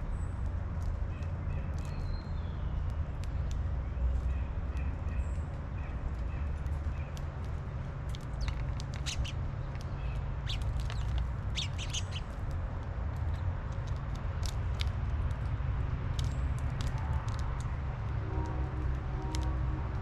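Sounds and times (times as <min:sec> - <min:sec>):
birds chirping: 0:08.2 - 0:12.4.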